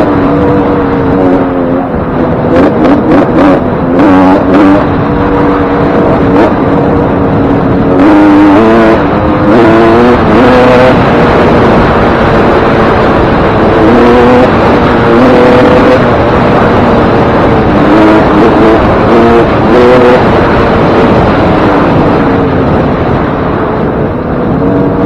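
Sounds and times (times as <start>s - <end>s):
motocross engine revving: 0.0s - 25.0s.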